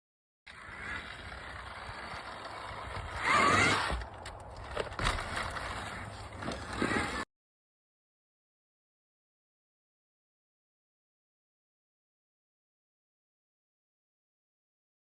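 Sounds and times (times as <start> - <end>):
electric motor whine: 0.5 - 7.2
dirt bike mechanical rush: 0.5 - 7.3.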